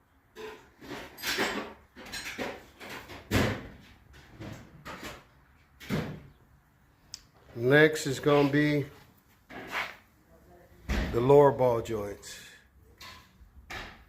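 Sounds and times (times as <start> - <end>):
handling scrapes and knocks: 8.1 - 10.1.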